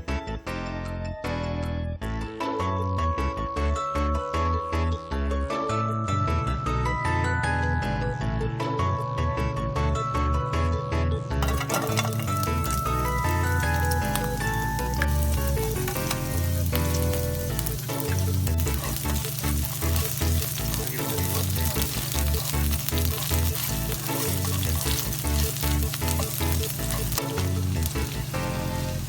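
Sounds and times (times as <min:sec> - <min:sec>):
background music: 0:00.0 - 0:29.0
vegetables sizzling in frying pan: 0:11.4 - 0:29.0.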